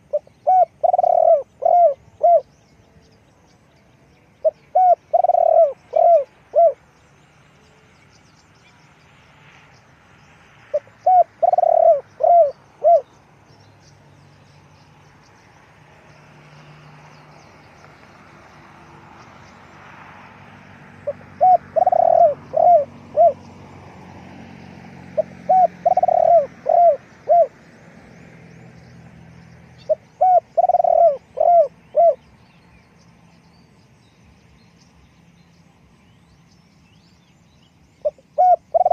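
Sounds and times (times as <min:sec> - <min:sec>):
dove cooing: 0:00.0 - 0:02.5, 0:04.4 - 0:06.8, 0:10.7 - 0:13.1, 0:21.0 - 0:23.5, 0:25.1 - 0:27.6, 0:29.8 - 0:32.2, 0:38.0 - 0:38.9.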